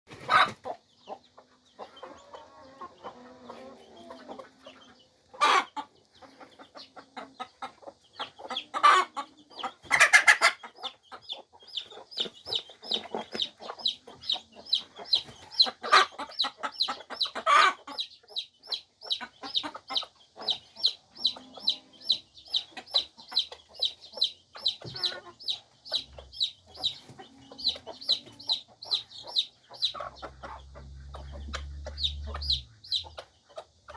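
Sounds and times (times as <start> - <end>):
chicks peeping: 0.1 - 33.9
hen clucking: 0.1 - 33.9.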